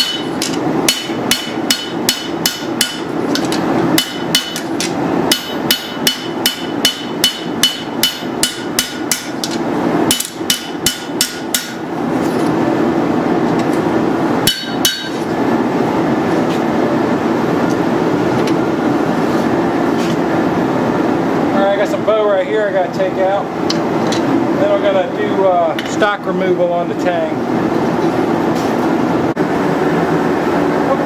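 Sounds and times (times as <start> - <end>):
hammer striking steel on anvil: 0.0 - 11.9, 14.4 - 15.3.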